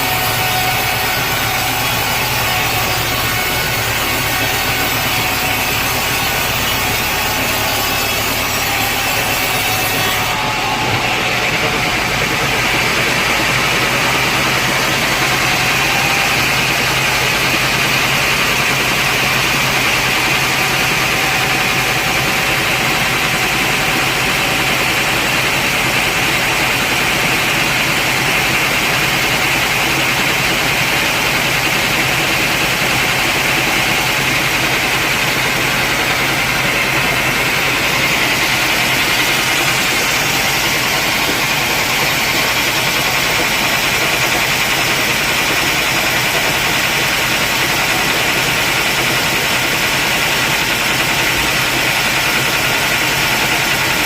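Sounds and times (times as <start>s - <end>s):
sawmill machinery drone with hiss: 0.0s - 54.0s.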